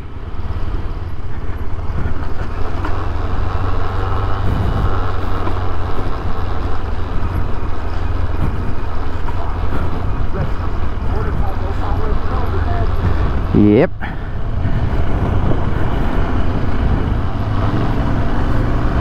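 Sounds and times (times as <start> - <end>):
motorcycle engine running under load: 0.0 - 19.0.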